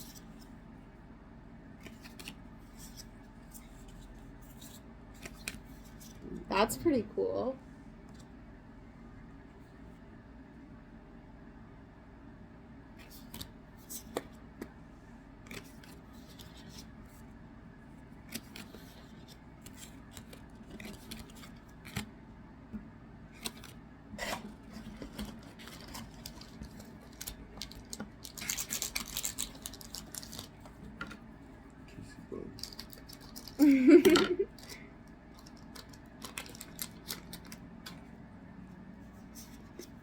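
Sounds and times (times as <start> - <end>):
wrapper rustling: 24.2 - 30.7, 35.4 - 37.6.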